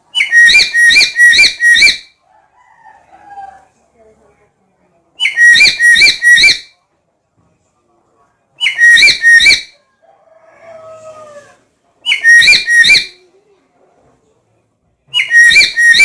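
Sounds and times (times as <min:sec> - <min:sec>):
parrot shrill whistled calls: 0:00.2 - 0:02.1, 0:05.2 - 0:06.7, 0:08.6 - 0:09.8, 0:12.1 - 0:13.2, 0:15.2 - 0:16.0.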